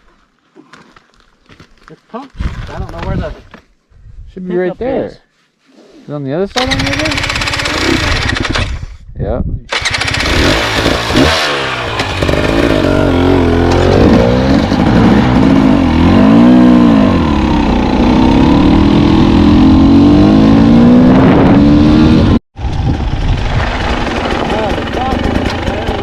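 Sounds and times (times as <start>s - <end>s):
dirt bike engine revving: 6.6s - 8.9s, 9.7s - 26.0s.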